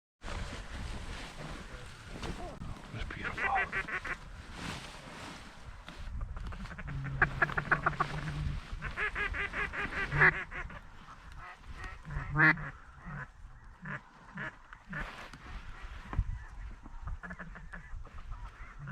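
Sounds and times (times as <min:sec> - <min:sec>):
mallard quacking: 0:03.1 - 0:04.2, 0:06.5 - 0:15.9, 0:16.5 - 0:18.9.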